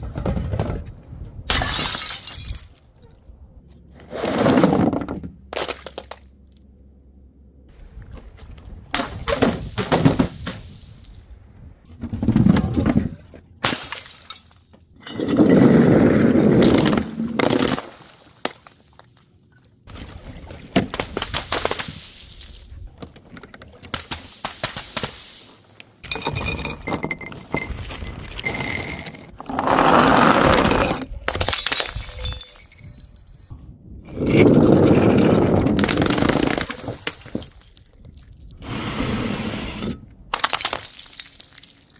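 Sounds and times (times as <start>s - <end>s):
glass bottles smashing: 1.5s - 2.8s, 13.6s - 15.4s, 26.0s - 29.3s, 31.3s - 33.3s, 40.4s - 41.9s.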